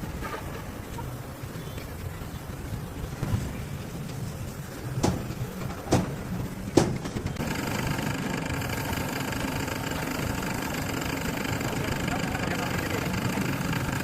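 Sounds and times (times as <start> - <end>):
engine-like running sound: 0.0 - 14.0
sharp knocks: 5.0 - 7.4.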